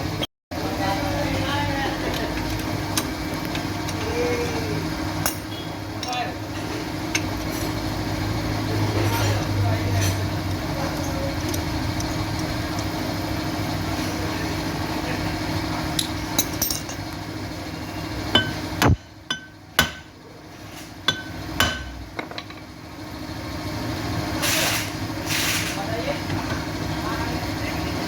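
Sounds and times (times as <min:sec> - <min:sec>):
hammer striking metal: 0:18.3 - 0:20.2, 0:21.0 - 0:22.6.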